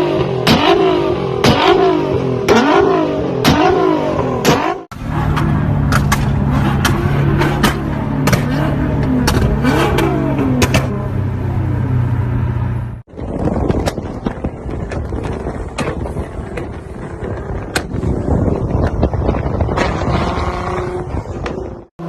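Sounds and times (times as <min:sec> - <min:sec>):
rough noisy engine: 0:00.0 - 0:22.0
exhaust pops and cracks: 0:13.1 - 0:20.2.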